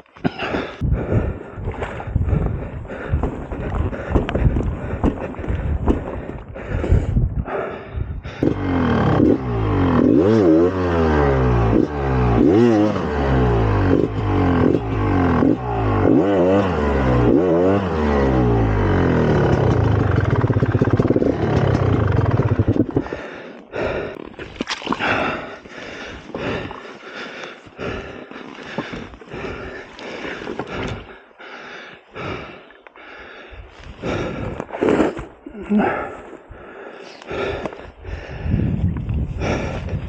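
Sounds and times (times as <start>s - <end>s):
dirt bike engine revving: 8.3s - 23.1s.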